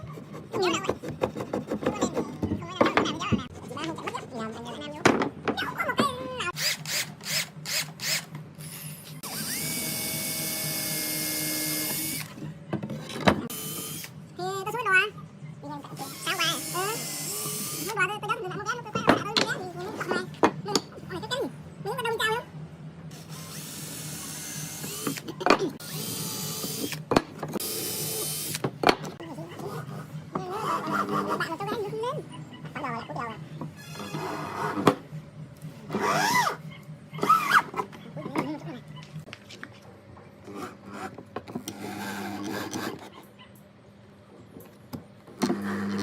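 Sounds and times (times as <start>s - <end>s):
power drill spinning: 6.6s - 12.4s, 13.5s - 14.1s, 16.0s - 17.9s, 23.1s - 27.0s, 27.6s - 28.6s.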